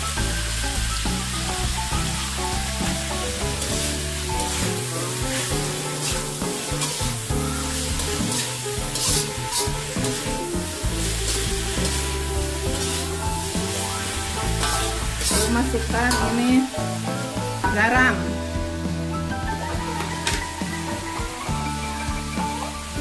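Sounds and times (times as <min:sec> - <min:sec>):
background music: 0:00.0 - 0:23.0
carrots sizzling in oil: 0:00.0 - 0:23.0
metal spatula scraping wok: 0:02.2 - 0:18.2.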